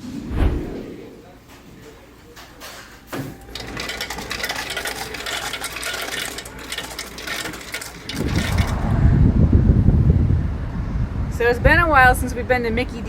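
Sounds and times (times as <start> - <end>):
low rumble: 0.0 - 1.3, 8.2 - 11.4
clatter of small clicks and rattles: 3.2 - 8.9.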